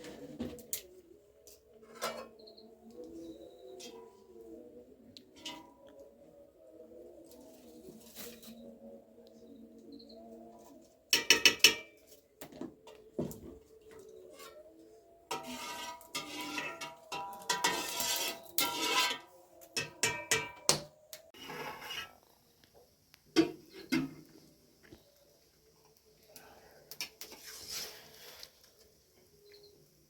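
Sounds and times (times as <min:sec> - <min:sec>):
metal pots clattering: 0:11.2 - 0:12.0, 0:15.3 - 0:20.7.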